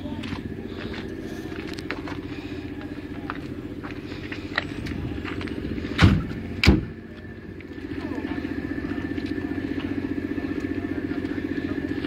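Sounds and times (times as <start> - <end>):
engine humming: 0.0 - 12.0
loud thumps: 6.0 - 7.0.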